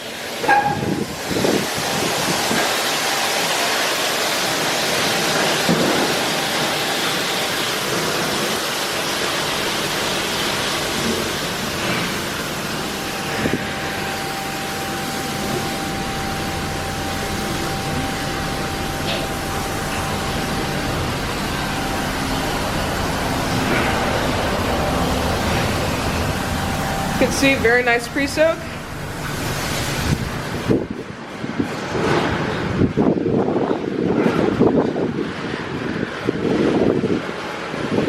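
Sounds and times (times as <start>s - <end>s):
high-pressure water spraying: 0.0s - 38.0s
steady machine whine: 0.0s - 38.0s
low hum: 9.6s - 32.9s.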